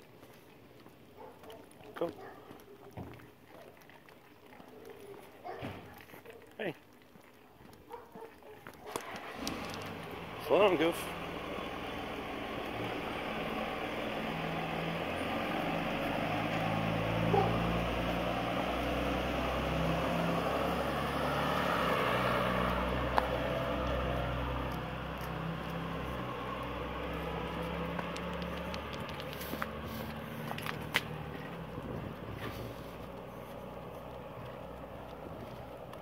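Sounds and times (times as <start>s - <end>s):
road noise: 0.0s - 36.0s
vehicle engine humming: 9.0s - 36.0s.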